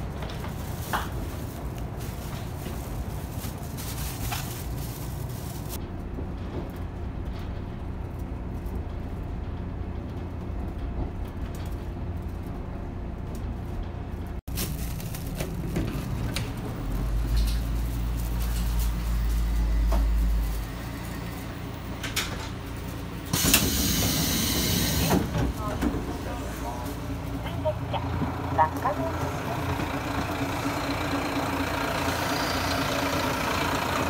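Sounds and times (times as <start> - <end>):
rattles and clatter: 0.0 - 23.3
train engine and wheel rumble: 0.0 - 34.0.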